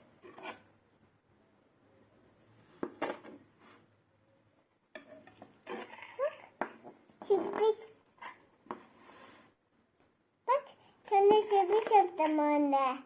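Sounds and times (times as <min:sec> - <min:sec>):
knife scraping kinetic sand: 0:00.2 - 0:00.7.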